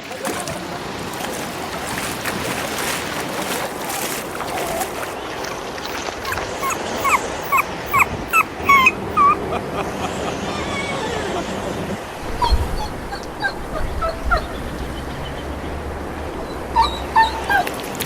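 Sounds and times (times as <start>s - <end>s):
dog whimpering: 4.5s - 9.5s, 10.4s - 11.5s, 12.2s - 15.4s, 16.3s - 17.8s.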